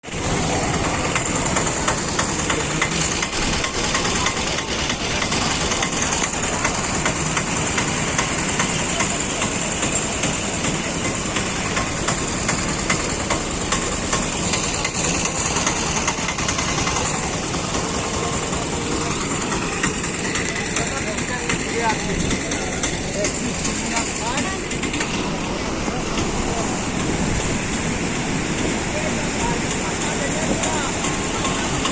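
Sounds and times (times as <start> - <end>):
floodwater rushing: 0.0 - 31.9.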